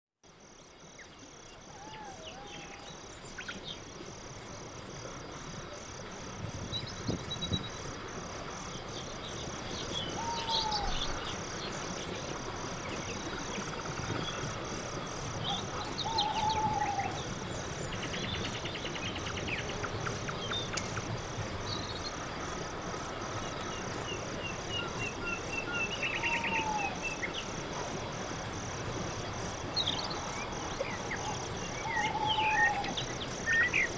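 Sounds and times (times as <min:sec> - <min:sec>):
crickets chirping: 0:00.2 - 0:33.9
birds calling and chirping: 0:15.2 - 0:22.1, 0:29.8 - 0:33.9.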